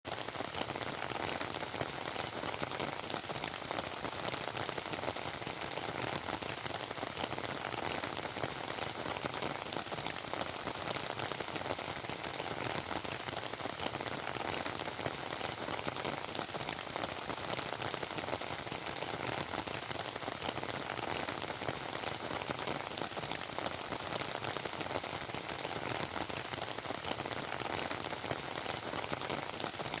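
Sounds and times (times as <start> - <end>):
steady rain falling: 0.1 - 30.0.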